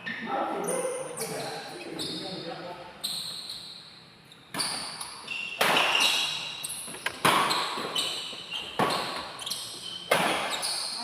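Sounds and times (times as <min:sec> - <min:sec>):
short high squeaks: 0:03.0 - 0:11.0
rackets hitting shuttlecock: 0:04.5 - 0:10.8.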